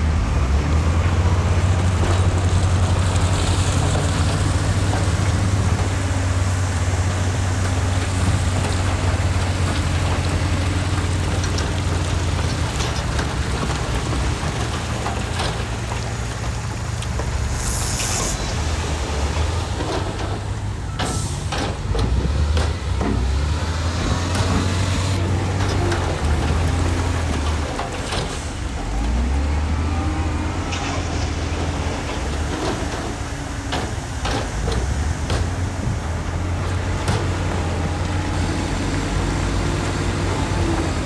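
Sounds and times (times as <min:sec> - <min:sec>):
heavy diesel engines running: 0:00.0 - 0:41.0
knocks and clanks: 0:07.0 - 0:29.2, 0:30.6 - 0:41.0
short hiss: 0:17.2 - 0:20.0.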